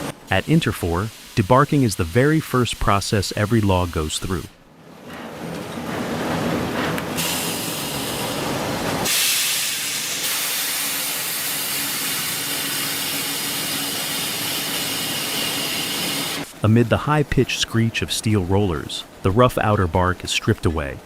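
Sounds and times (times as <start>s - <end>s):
faint machine hum: 9.7s - 21.0s.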